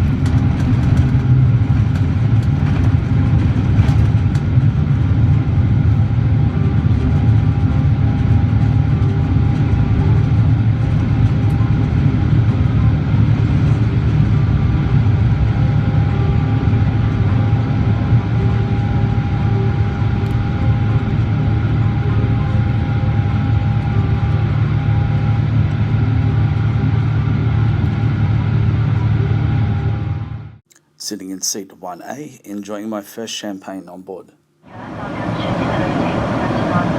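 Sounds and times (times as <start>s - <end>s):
jet airliner cabin drone: 0.0s - 30.6s, 34.7s - 36.9s
faint steady whine: 5.9s - 30.6s, 34.7s - 36.9s.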